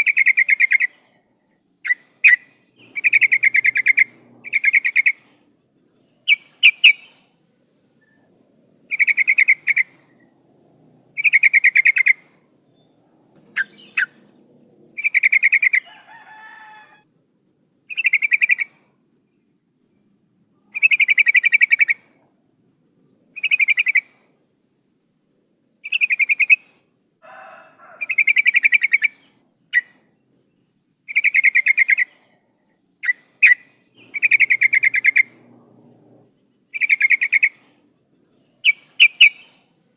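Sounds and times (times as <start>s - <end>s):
sharp bird chirps: 0.0s - 5.4s, 6.0s - 15.9s, 17.8s - 18.8s, 20.7s - 22.1s, 23.4s - 24.1s, 25.8s - 26.8s, 28.0s - 36.0s, 36.7s - 37.8s, 38.4s - 39.9s
bird chattering bursts: 1.8s - 5.4s, 6.2s - 7.3s, 8.1s - 12.4s, 13.5s - 15.9s, 31.1s - 32.2s, 33.0s - 36.0s, 36.7s - 37.8s, 38.6s - 39.7s.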